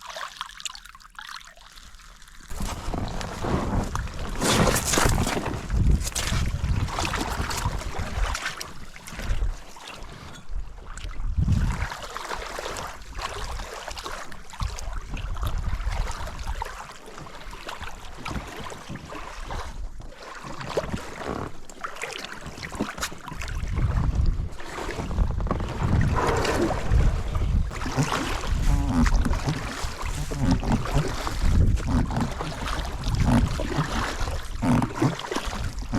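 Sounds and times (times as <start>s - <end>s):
wind buffeting microphone: 2.5s - 8.4s, 11.2s - 11.9s, 23.5s - 34.6s
rushing water: 24.6s - 35.9s.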